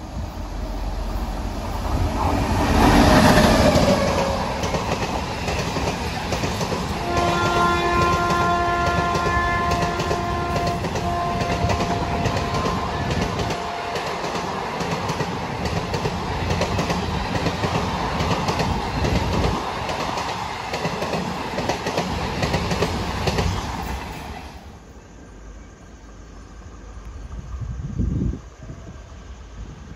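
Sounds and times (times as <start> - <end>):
train rushing past: 0.0 - 29.9
wheels clickety-clack over joints: 3.3 - 24.1
locomotive horn: 7.0 - 14.3.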